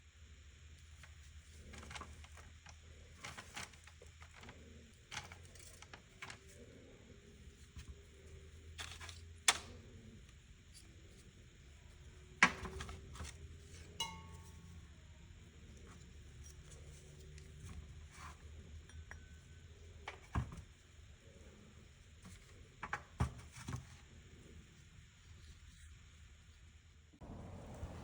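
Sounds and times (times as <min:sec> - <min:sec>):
low steady hum: 0:00.0 - 0:28.0
light metallic clink: 0:14.0 - 0:14.7.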